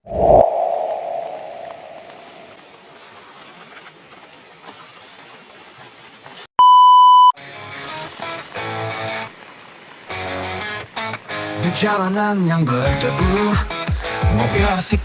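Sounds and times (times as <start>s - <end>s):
music: 7.4s - 9.3s, 10.2s - 15.0s.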